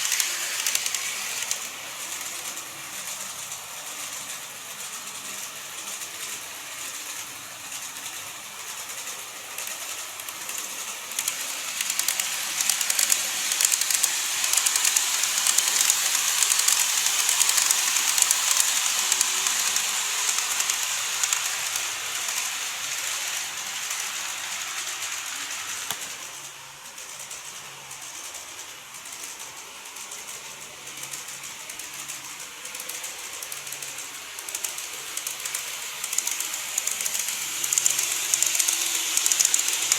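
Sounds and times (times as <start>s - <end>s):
model train clicking on track: 0.0s - 39.9s.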